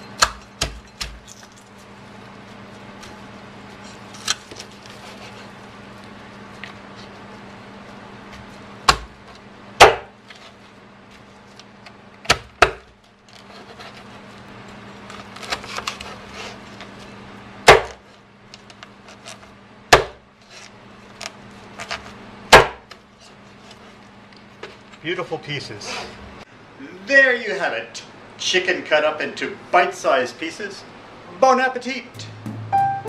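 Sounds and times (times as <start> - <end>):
meat cleaver chopping through bone: 0.0 - 1.2, 8.8 - 10.1, 12.2 - 13.0, 17.7 - 18.0, 19.9 - 20.2, 22.5 - 22.9.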